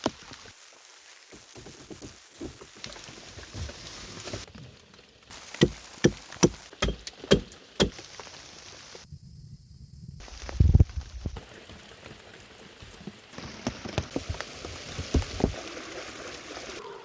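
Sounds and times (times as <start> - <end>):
rain falling: 0.0 - 9.1, 10.2 - 17.0
sharp knocks: 5.6 - 8.0.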